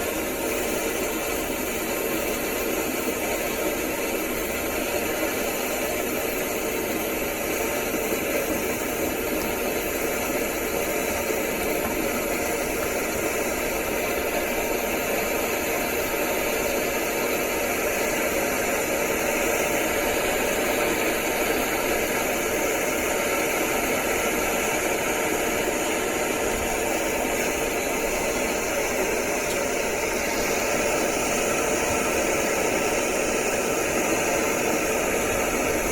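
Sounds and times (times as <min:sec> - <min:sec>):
furnace burner flame rushing: 0:00.0 - 0:35.9.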